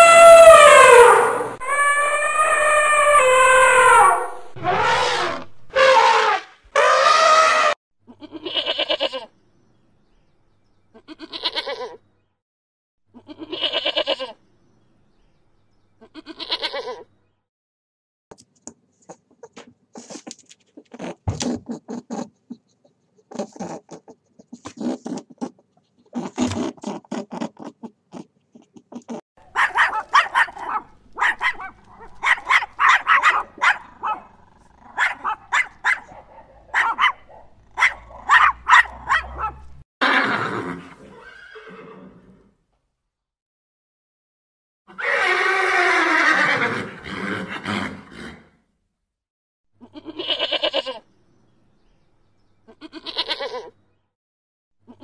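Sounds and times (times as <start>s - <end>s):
goats bleating: 8.2s - 9.3s, 13.2s - 14.4s, 49.8s - 51.0s, 52.7s - 53.7s.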